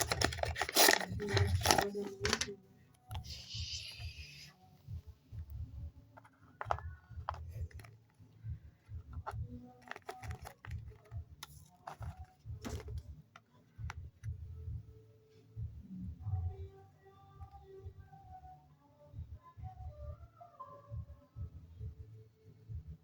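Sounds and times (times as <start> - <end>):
paper crinkling and tapping: 0.0 - 2.5, 6.2 - 14.4.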